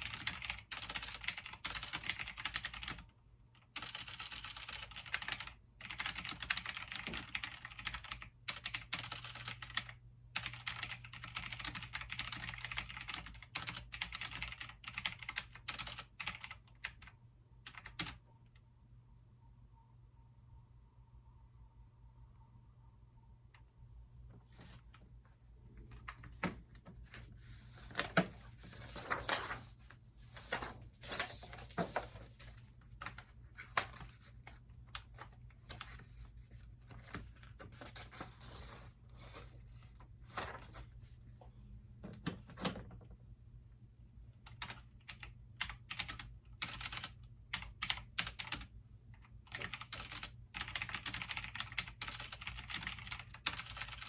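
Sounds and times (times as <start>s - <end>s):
typing on a keyboard: 0.0s - 18.2s, 34.9s - 36.1s, 44.4s - 54.0s.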